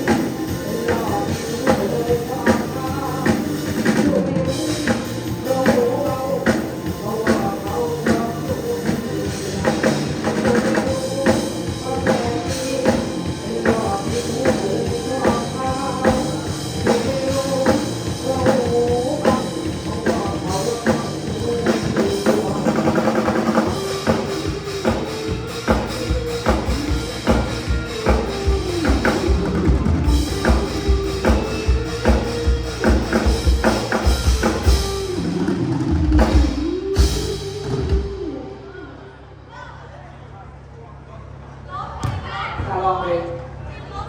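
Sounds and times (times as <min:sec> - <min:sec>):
drum kit steady beat: 0:00.0 - 0:38.3.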